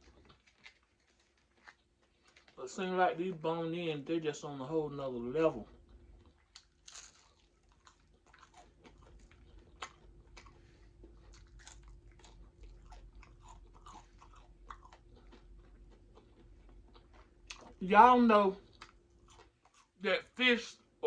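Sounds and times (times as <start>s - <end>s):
person chewing crunchy food: 0.0s - 2.6s, 5.5s - 17.9s, 18.5s - 20.0s.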